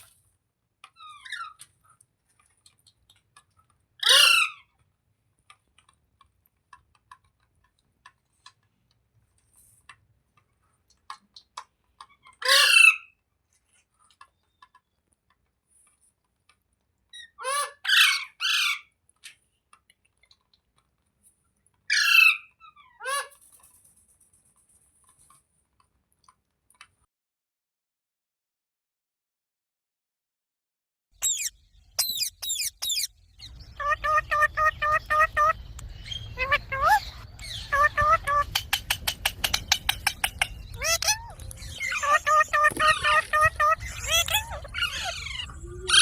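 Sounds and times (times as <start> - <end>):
parrot squawking: 4.0 - 4.7, 12.3 - 13.1, 17.2 - 18.9, 21.9 - 23.3, 31.2 - 46.0.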